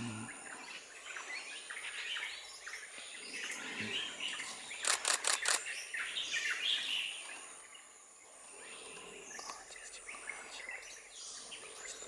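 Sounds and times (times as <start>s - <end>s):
camera shutter firing: 4.8s - 5.6s.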